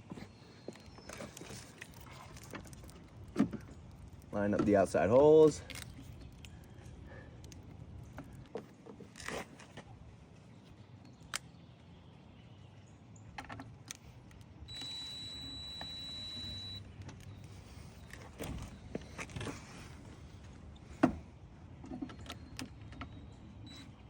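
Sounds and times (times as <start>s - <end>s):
cordless drill whining: 14.7s - 16.8s.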